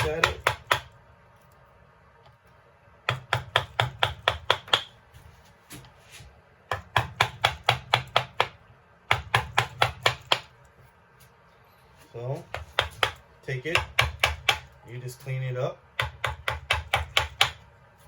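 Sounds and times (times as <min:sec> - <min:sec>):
carving blade chopping wood: 0:00.0 - 0:01.0, 0:03.1 - 0:04.9, 0:06.7 - 0:10.5, 0:12.5 - 0:14.7, 0:16.0 - 0:17.6.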